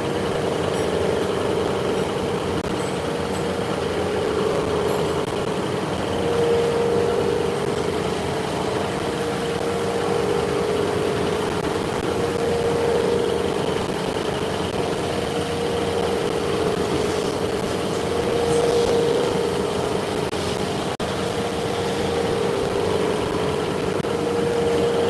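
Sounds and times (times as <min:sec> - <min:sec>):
machine humming steadily: 0:00.0 - 0:25.0
machining noise: 0:00.0 - 0:25.0.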